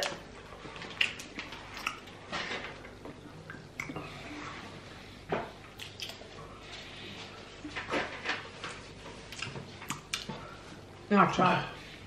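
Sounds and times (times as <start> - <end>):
wet mouth chewing sounds: 0.8 - 2.1.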